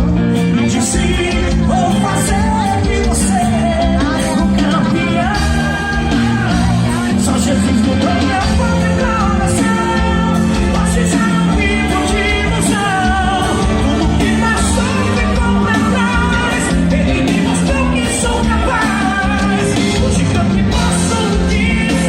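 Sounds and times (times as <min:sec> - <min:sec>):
live band playing upbeat music: 0:00.0 - 0:22.0
person singing: 0:00.0 - 0:22.0.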